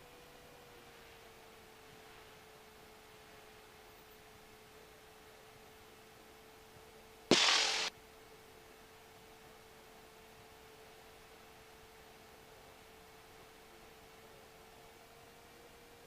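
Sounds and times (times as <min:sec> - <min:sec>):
faint electrical hum: 0:05.5 - 0:13.4
burst of static hiss: 0:07.3 - 0:07.9.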